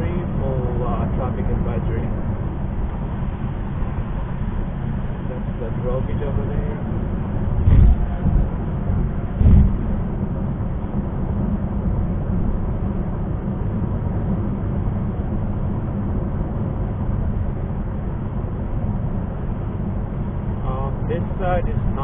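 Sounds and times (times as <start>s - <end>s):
road and tyre rumble: 0.0s - 22.0s
short low thump: 7.6s - 8.6s, 9.2s - 10.3s.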